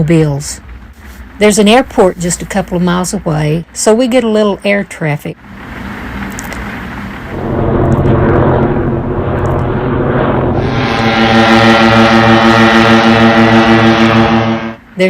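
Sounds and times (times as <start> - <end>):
light aircraft engine droning: 0.0 - 15.0
locomotive air horn chord: 10.6 - 14.9.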